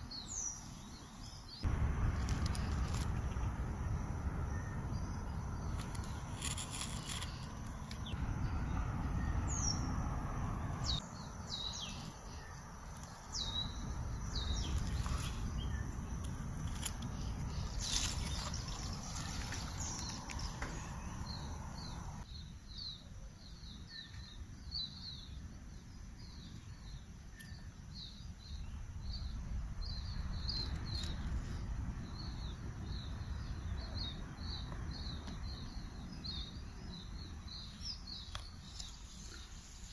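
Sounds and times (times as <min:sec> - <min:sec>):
birds chirping: 0:00.0 - 0:25.4
low outdoor rumble: 0:01.6 - 0:22.2.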